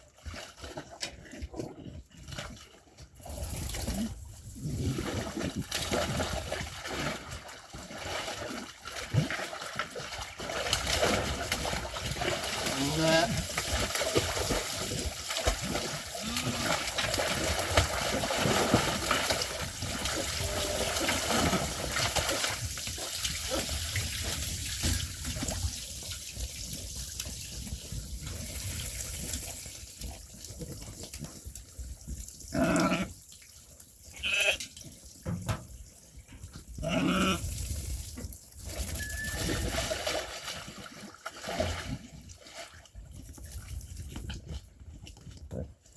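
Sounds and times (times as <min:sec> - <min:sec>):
sheep bleating: 0:34.2 - 0:34.6.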